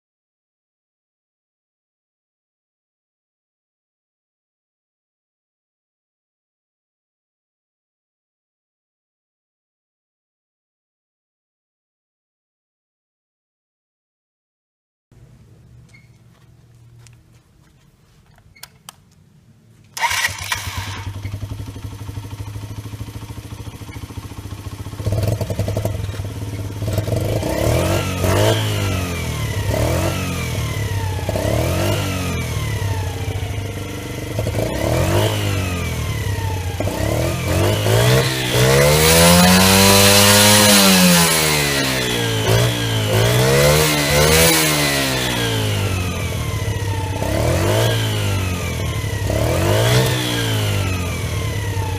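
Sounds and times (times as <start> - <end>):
motorcycle engine idling and revving: 20.0 - 51.9.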